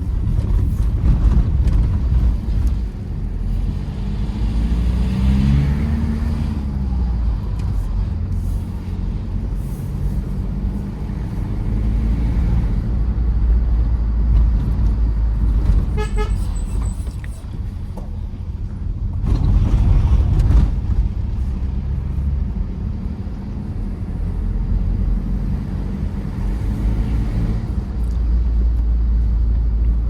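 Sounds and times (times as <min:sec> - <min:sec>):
diesel engine and road noise: 0:00.0 - 0:30.0
car horn toot: 0:15.9 - 0:16.6.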